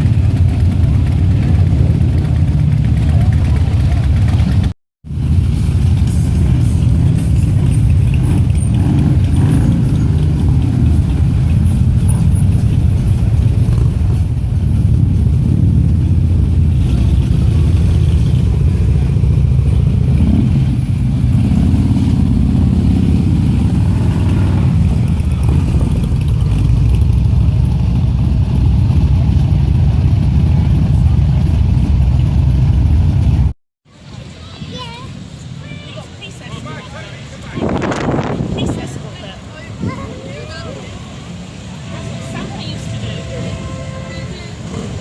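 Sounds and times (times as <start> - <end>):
motorcycles riding past: 0.0 - 33.5
engine revving: 5.2 - 33.4.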